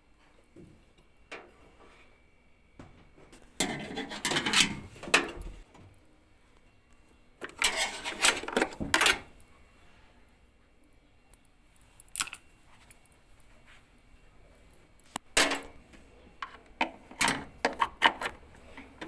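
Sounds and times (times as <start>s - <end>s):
hard objects clattering: 16.4s - 19.0s.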